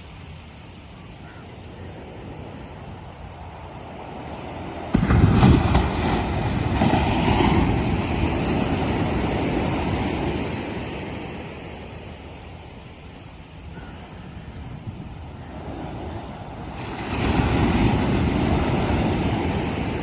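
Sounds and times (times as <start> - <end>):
steady surf hiss: 0.0 - 20.0
ocean wave crashing: 2.3 - 12.3, 15.3 - 20.0.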